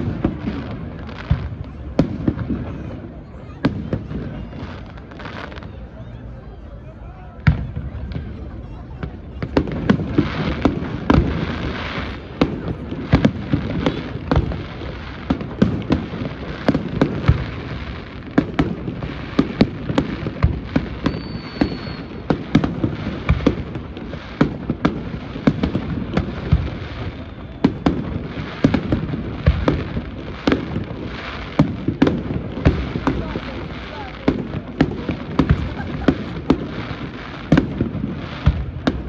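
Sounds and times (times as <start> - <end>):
fireworks crackling: 0.0 - 39.0
fireworks shells bursting: 9.7 - 27.2
high firework whistle: 19.4 - 23.6, 26.1 - 28.9.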